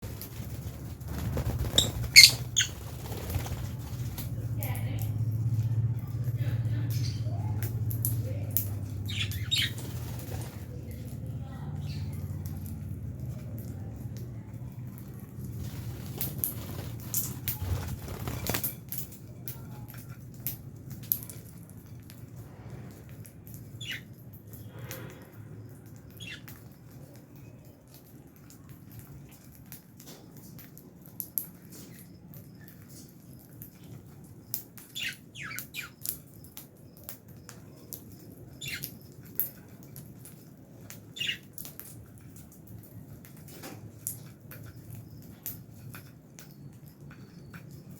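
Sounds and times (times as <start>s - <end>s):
steady low hum: 0.0s - 18.6s
birds cracking seeds: 0.0s - 47.9s.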